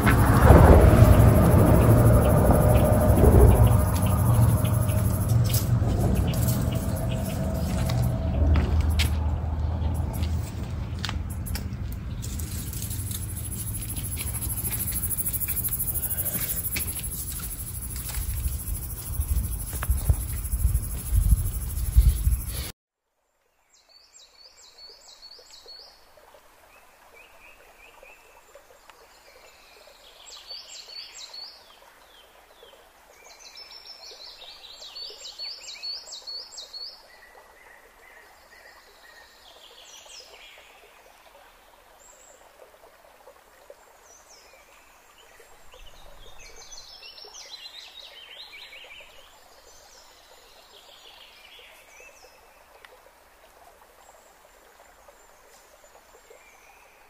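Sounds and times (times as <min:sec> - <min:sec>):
birds chirping: 0:00.0 - 0:22.7
faint outdoor background: 0:00.0 - 0:57.0.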